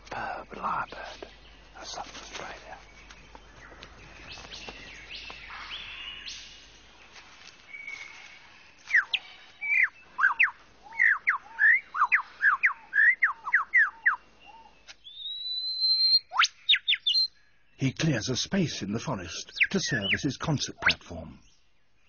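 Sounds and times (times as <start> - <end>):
forest bird sounds: 0.0 - 22.0
lyrebird whistled song: 7.7 - 17.4, 19.5 - 21.6.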